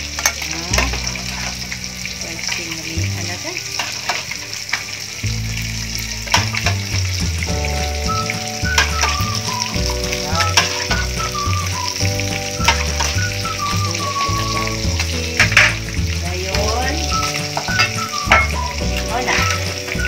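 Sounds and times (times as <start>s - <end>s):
background music with bass line: 0.0s - 20.0s
pot simmering hiss: 0.0s - 20.0s
metal ladle clinking on pot: 10.4s - 11.1s, 17.6s - 18.6s.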